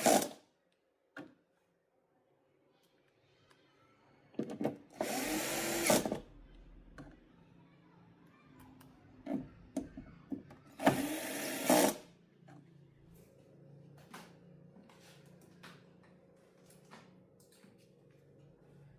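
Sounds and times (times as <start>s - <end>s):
handheld power tool running: 5.0s - 6.1s, 10.8s - 12.0s.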